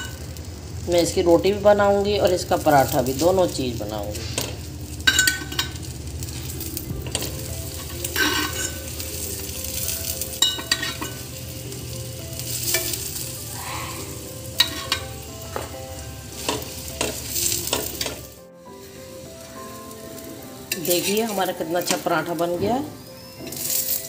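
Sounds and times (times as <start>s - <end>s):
flatbread sizzling on a griddle: 0.0s - 24.0s
metal spatula scraping a griddle: 4.1s - 18.4s, 23.4s - 24.0s.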